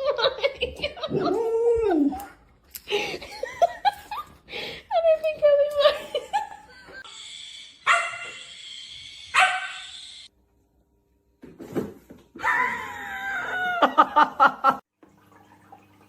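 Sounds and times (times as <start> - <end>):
dog barking and yelping: 7.8 - 8.4, 9.3 - 10.0.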